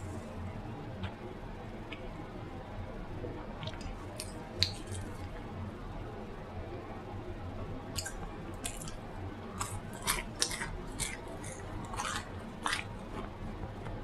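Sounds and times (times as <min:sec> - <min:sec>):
chewing with wet mouth smacks: 0:03.6 - 0:05.3, 0:07.9 - 0:09.0, 0:09.6 - 0:14.0.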